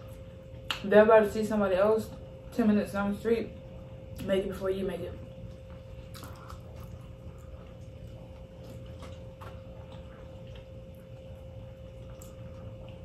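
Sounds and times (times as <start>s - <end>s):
low hum: 0.0s - 13.0s
faint chewing: 5.2s - 13.0s.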